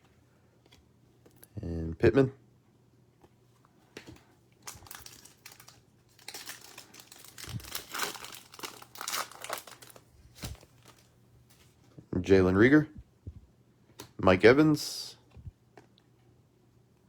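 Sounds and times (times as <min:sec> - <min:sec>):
wrapper being torn and crinkled: 0:04.6 - 0:11.1.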